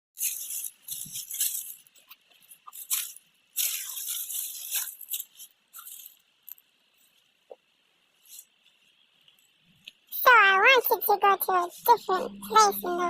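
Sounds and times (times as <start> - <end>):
rustling crunching noise: 0.2 - 7.4.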